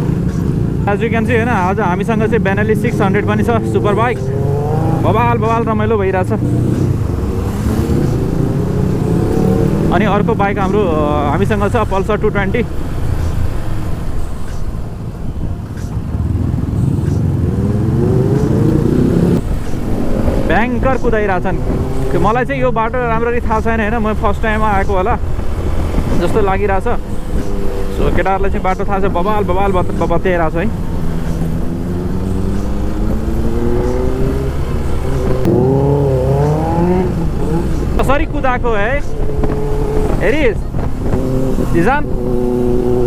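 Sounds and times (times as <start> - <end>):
motorcycle engine accelerating: 0.0 - 11.6, 16.1 - 22.5, 25.3 - 43.0
wind rumble on microphone: 33.1 - 43.0.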